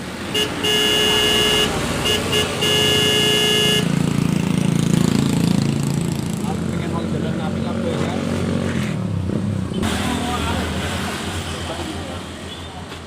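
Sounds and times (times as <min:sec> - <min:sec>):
vehicle horn honking: 0:00.3 - 0:04.0.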